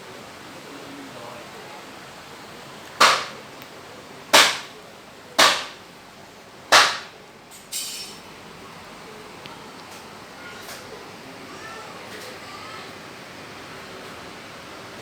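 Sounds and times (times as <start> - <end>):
sharp knocks: 3.0 - 3.4, 4.4 - 4.7, 5.4 - 5.8, 6.7 - 7.2.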